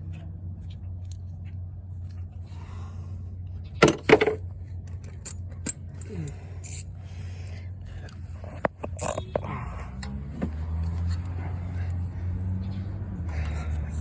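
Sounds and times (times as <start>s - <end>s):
metal hand tools clinking: 5.2s - 6.9s, 8.9s - 9.2s.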